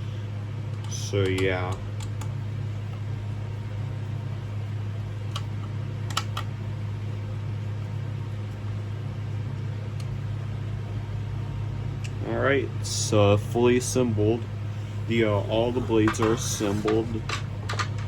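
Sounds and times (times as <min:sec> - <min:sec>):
steady low hum: 0:00.0 - 0:18.0
light clicks and taps: 0:00.7 - 0:03.1.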